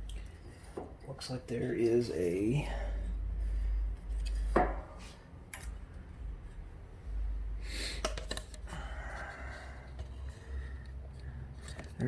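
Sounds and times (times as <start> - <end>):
low steady hum: 0.0 - 12.0
hands handling small parts: 8.0 - 8.7.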